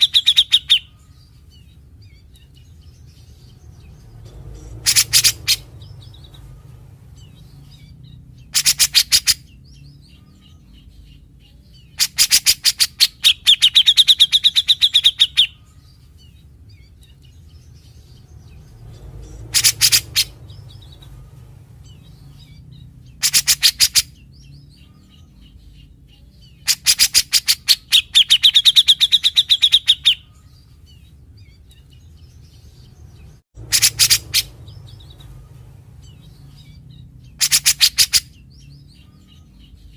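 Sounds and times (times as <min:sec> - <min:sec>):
bulbul singing rapid rattling phrases: 0:00.0 - 0:39.9
low steady hum: 0:30.2 - 0:37.5.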